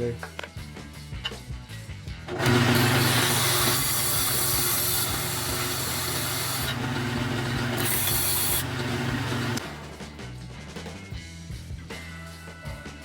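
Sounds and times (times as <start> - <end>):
sander motor humming: 2.3 - 10.0
wood sanding hiss: 2.4 - 9.6.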